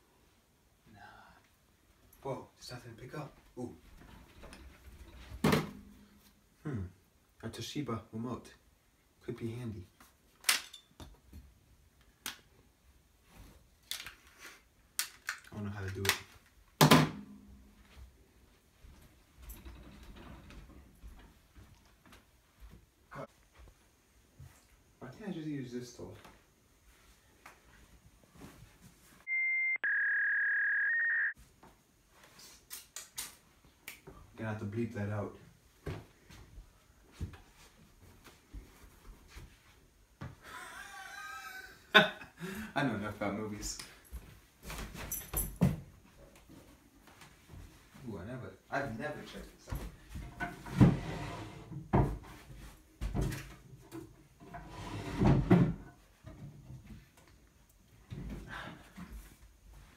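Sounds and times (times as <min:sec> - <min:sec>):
censor beep tone: 0:29.3 - 0:31.4
wooden knocks and scrapes: 0:50.2 - 0:53.4, 0:54.4 - 0:56.7.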